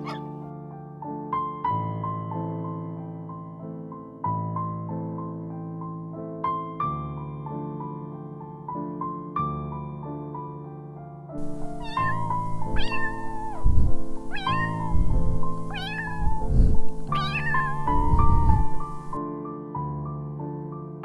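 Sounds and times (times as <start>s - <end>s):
animal meowing calls: 0.0s - 0.4s, 11.4s - 19.2s
soft piano music: 0.0s - 21.0s
low rumbles: 11.4s - 19.2s.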